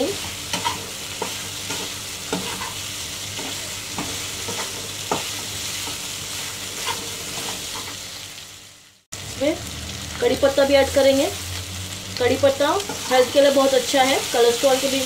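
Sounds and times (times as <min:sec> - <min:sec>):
chicken sizzling in oil: 0:00.0 - 0:15.0
metal spatula scraping pan: 0:00.5 - 0:02.8, 0:06.7 - 0:08.0.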